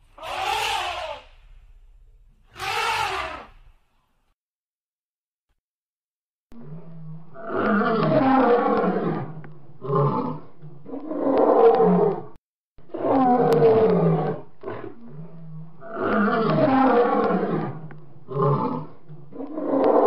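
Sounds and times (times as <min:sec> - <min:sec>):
lion roaring: 0:06.6 - 0:20.0.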